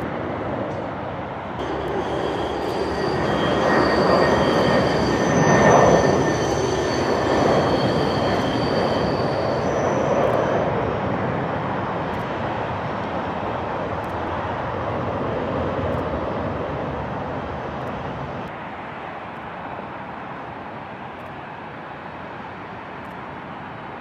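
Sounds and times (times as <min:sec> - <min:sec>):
high steady whining tones: 0:01.6 - 0:11.2.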